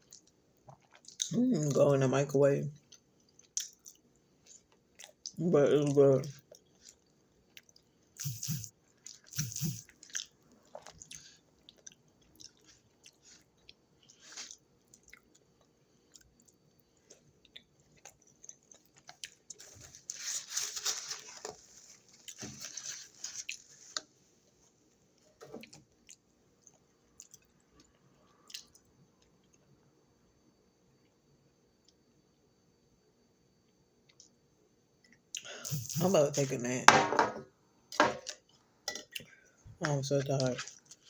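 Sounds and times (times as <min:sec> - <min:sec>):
person chewing and crunching food: 0:00.0 - 0:01.8, 0:02.8 - 0:24.2, 0:25.6 - 0:29.8, 0:38.2 - 0:41.0.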